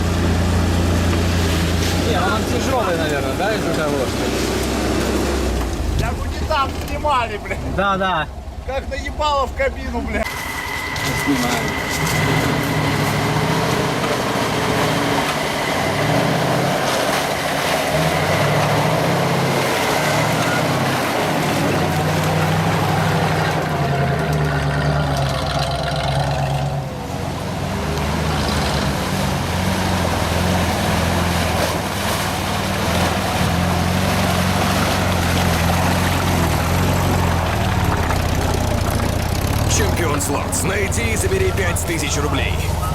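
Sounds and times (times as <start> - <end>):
truck engine revving: 0.0 - 42.9.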